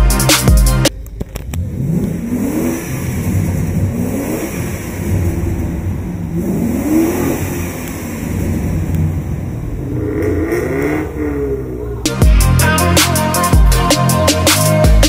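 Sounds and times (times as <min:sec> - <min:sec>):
music: 0:00.0 - 0:01.1, 0:12.1 - 0:15.0
car engine revving: 0:00.2 - 0:15.0.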